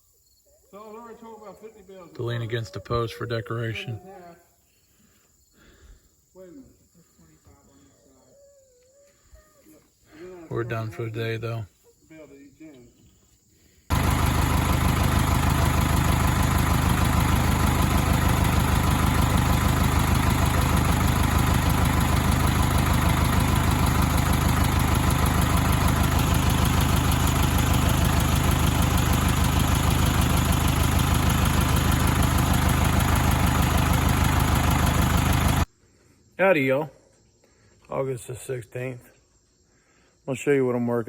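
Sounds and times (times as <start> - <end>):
engine idling: 13.9 - 35.7.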